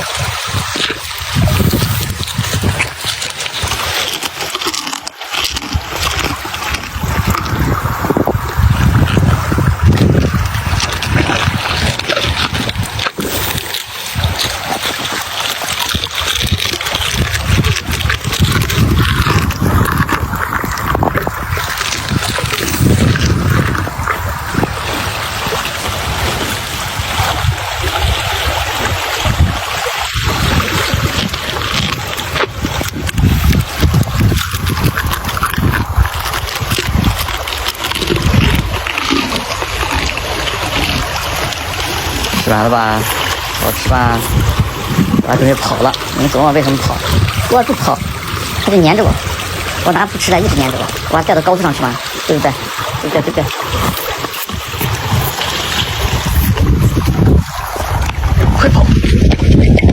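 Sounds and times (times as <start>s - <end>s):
wind buffeting microphone: 0.0s - 4.8s, 5.4s - 59.9s
rushing water: 0.0s - 59.9s
camel low rough pulses: 30.2s - 51.1s.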